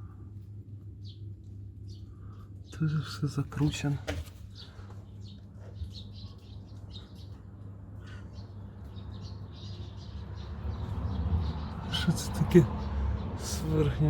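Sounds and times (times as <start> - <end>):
steady low hum: 0.0 - 9.0
birds chirping: 0.0 - 14.0.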